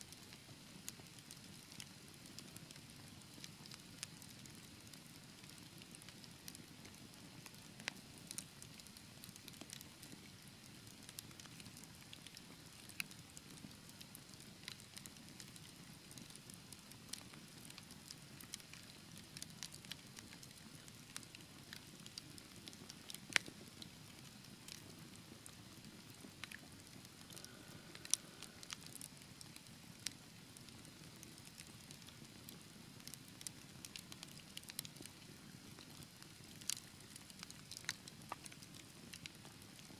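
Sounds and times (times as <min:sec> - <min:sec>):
fire crackling and popping: 0:00.1 - 0:39.9
low rumble of flames: 0:23.4 - 0:30.2.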